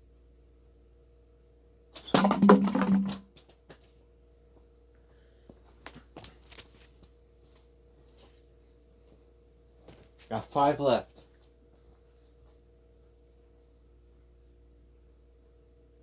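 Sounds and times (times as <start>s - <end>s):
plastic bottles clattering: 2.0s - 3.3s.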